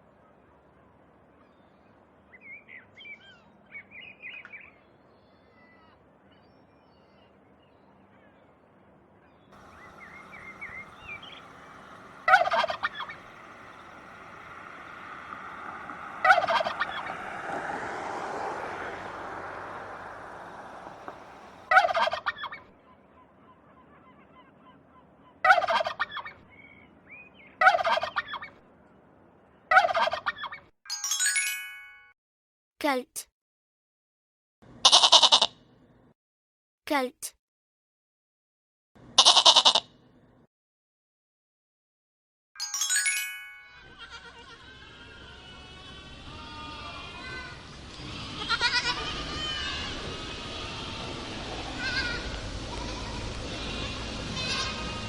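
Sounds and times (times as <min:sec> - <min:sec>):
soft high-pitched turkey calls: 0:09.6 - 0:17.2, 0:21.7 - 0:26.6, 0:29.7 - 0:30.6
turkeys gobbling: 0:09.6 - 0:17.7, 0:19.8 - 0:22.6, 0:25.4 - 0:26.3, 0:27.6 - 0:28.5, 0:29.7 - 0:30.6.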